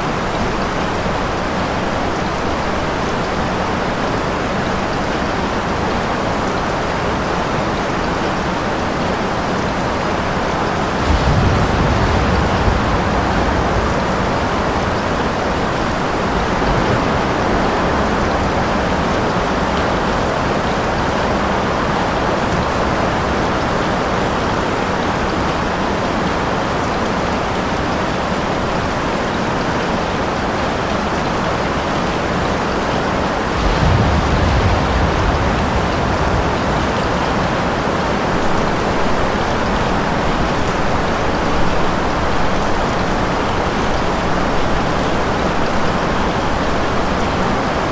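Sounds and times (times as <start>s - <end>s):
heavy rain: 0.0s - 47.9s
low rumble of thunder: 10.1s - 24.6s, 32.8s - 47.9s.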